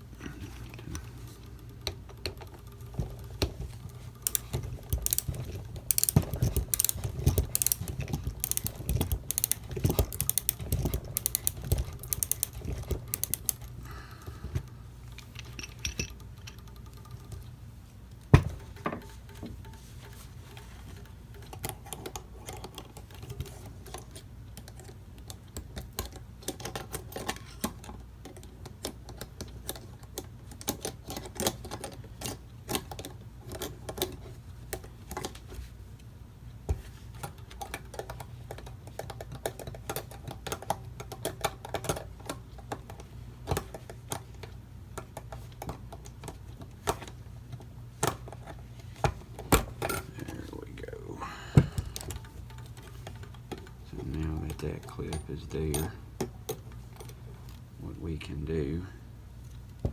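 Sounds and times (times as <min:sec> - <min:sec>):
steady low hum: 0:00.0 - 0:21.6, 0:46.7 - 0:59.9
small metallic clicks and taps: 0:00.9 - 0:13.8.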